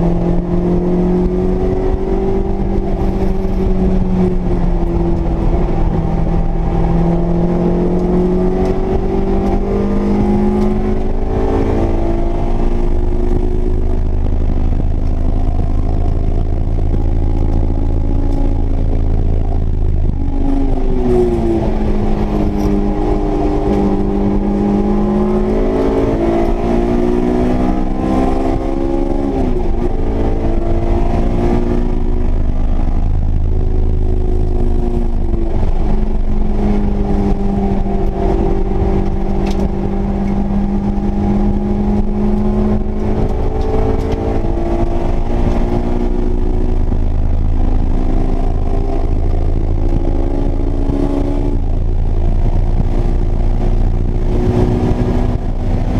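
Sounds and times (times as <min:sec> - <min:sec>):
high-revving car engine: 0:00.0 - 0:55.9
road and wind noise: 0:00.0 - 0:55.9.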